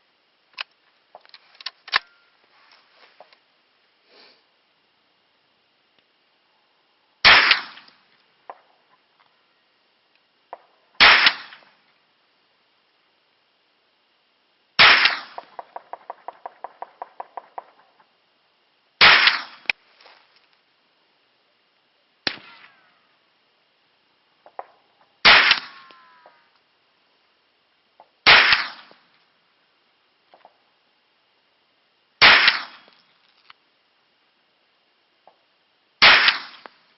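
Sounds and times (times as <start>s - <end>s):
carbine gunshots: 7.2s - 7.9s, 10.5s - 11.7s, 14.8s - 18.1s, 19.0s - 19.7s, 22.2s - 22.8s, 24.4s - 26.0s, 28.2s - 29.1s, 32.2s - 33.0s, 36.0s - 36.8s.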